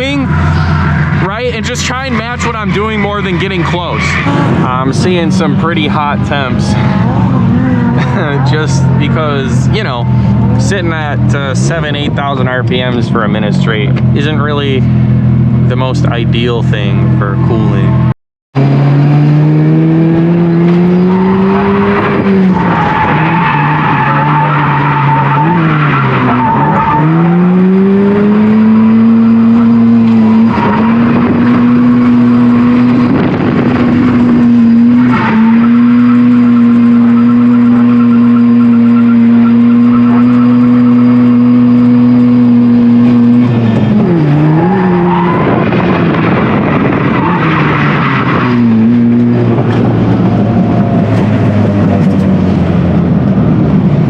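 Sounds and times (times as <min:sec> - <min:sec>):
rotary engine revving hard: 0:00.0 - 0:54.0
tyres skidding: 0:00.0 - 0:54.0.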